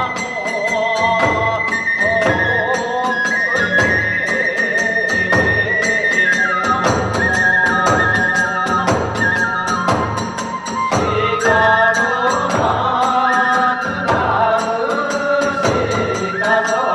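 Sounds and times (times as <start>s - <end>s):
bamboo flute melody: 0.0s - 16.9s
drum beats: 0.0s - 16.9s.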